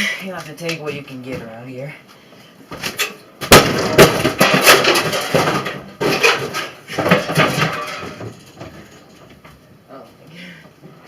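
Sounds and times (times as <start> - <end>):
broken metal and plastic clattering: 2.8 - 9.6.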